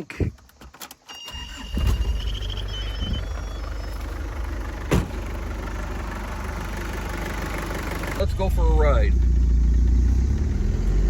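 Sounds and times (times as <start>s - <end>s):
high beeping warning tone: 1.1s - 4.6s
diesel engine idling: 1.3s - 11.0s.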